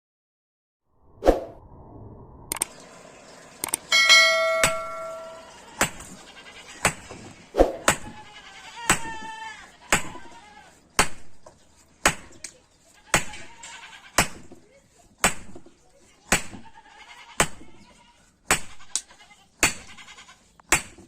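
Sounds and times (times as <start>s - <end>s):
anvil ringing: 3.8s - 6.1s
hammer striking steel on anvil: 3.8s - 6.1s
bleat-like animal call: 8.0s - 10.8s, 13.0s - 14.2s, 16.6s - 20.5s.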